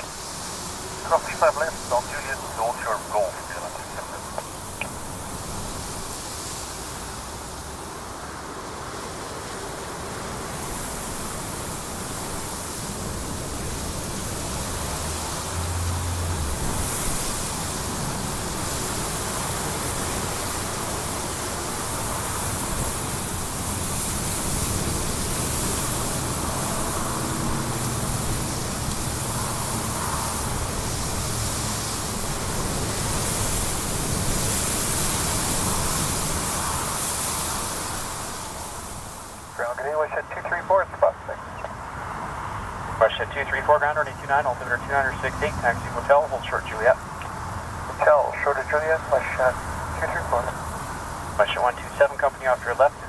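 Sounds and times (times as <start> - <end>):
jet engine rushing: 0.9 - 5.1.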